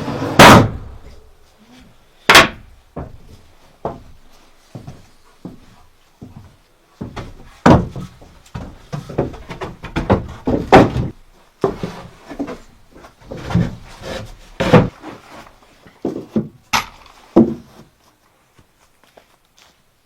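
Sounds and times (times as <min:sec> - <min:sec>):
wooden knocks and thuds: 0:02.3 - 0:04.2, 0:07.0 - 0:15.1, 0:15.9 - 0:18.0.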